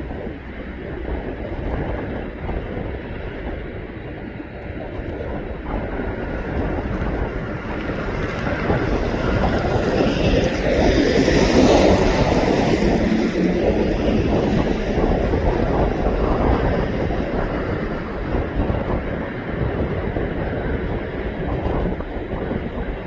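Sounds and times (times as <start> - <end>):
aircraft engine rumble: 0.0 - 23.0
wind buffeting microphone: 0.0 - 23.0.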